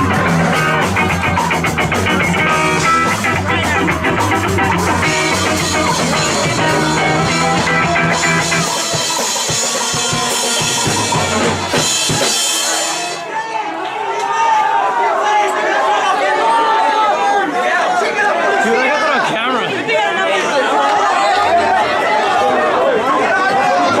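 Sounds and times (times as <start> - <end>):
electric guitar: 0.0 - 13.1
bass: 0.0 - 13.2
drum kit: 0.0 - 13.3
ska-punk band playing live: 0.0 - 13.3.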